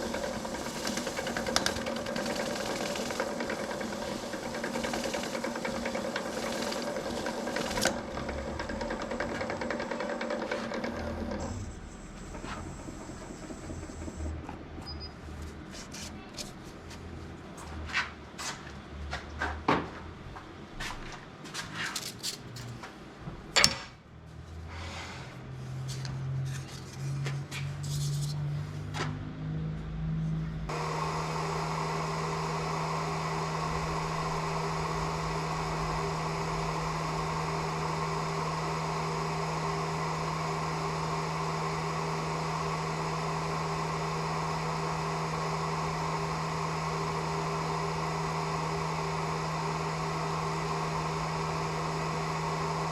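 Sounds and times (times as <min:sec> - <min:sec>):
lathe motor humming: 0:00.0 - 0:15.6, 0:30.7 - 0:52.9.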